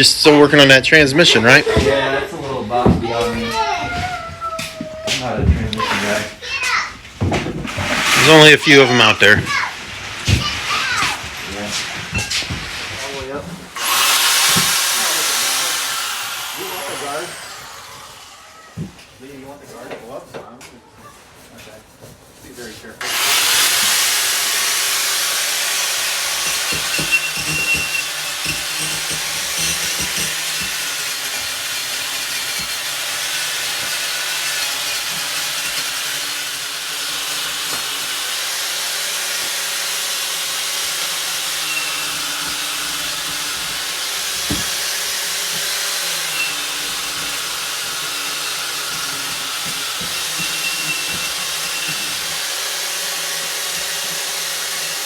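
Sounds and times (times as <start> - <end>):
wire wheel grinding steel: 13.7 - 18.4, 23.0 - 55.0.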